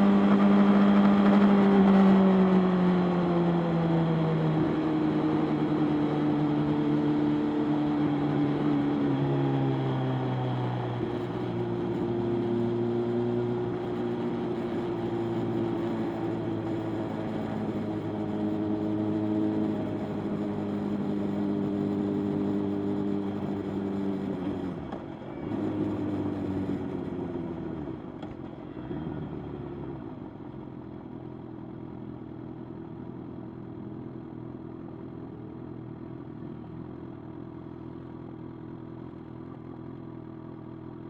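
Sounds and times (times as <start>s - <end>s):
motorcycle engine running: 30.4s - 41.0s.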